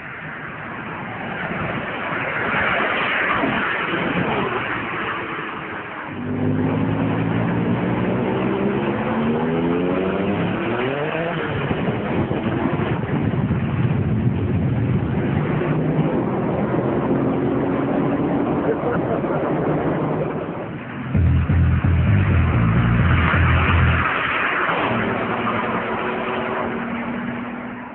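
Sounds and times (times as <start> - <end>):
sports car engine accelerating: 6.2 - 13.2, 21.0 - 27.9.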